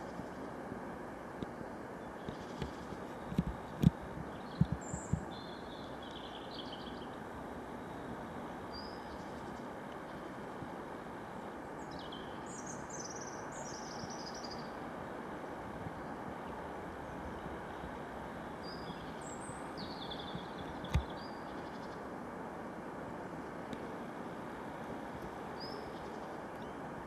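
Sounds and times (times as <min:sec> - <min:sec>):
small birds chirping: 0:02.0 - 0:07.2, 0:11.8 - 0:14.8, 0:18.6 - 0:22.0, 0:25.6 - 0:26.8.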